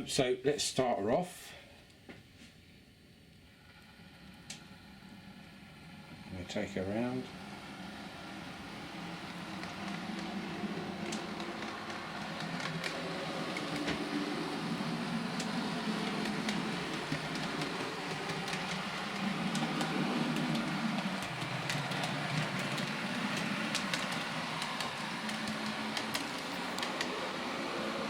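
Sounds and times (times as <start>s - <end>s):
model railcar motor hum: 3.4s - 28.0s
wheels on rails: 6.2s - 28.0s.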